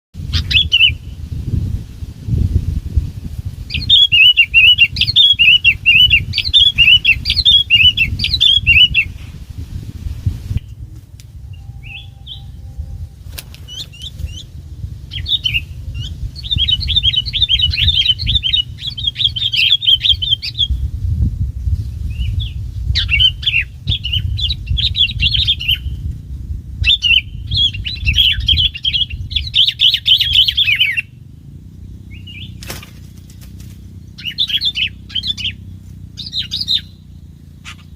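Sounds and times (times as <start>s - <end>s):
bird warbling song: 0.2s - 1.6s, 3.2s - 9.4s, 10.5s - 37.9s
steady low rumble: 0.2s - 37.9s.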